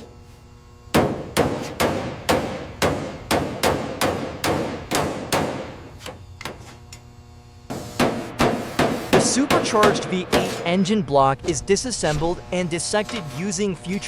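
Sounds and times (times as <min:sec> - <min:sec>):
hammer blows on metal: 0:07.7 - 0:10.8.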